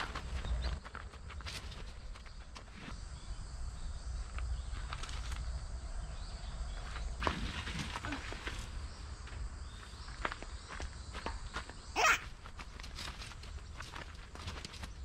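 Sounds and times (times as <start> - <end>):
footsteps on gravel: 0.0 - 3.0, 7.2 - 15.0
faint insect drone: 0.0 - 15.0.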